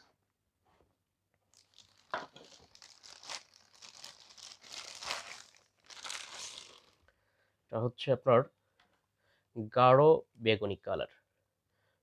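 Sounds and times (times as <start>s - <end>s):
plastic packaging crinkling and tearing: 1.5s - 7.0s.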